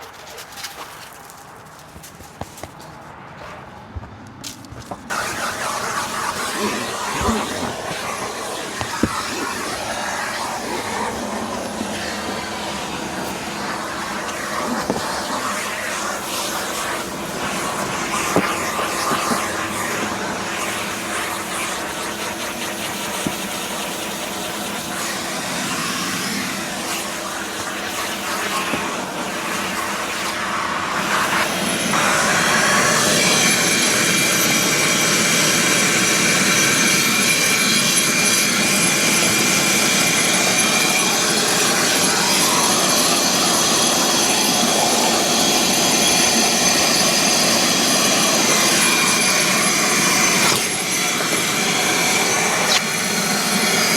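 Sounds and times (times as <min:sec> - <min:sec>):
steady rushing noise: 0:04.2 - 0:31.8
machine motor whining: 0:05.1 - 0:35.3.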